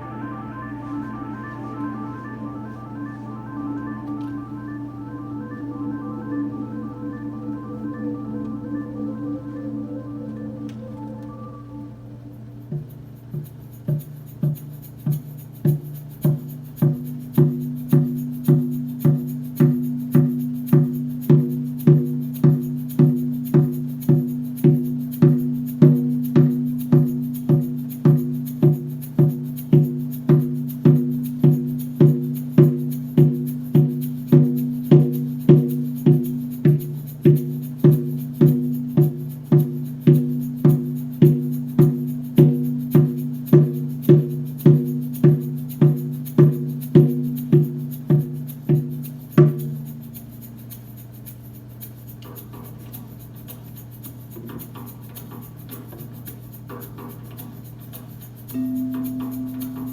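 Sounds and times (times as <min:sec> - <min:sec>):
low sustained drone: 0:00.0 - 0:13.1
hand drum beating: 0:12.7 - 0:51.1, 0:52.2 - 0:59.9.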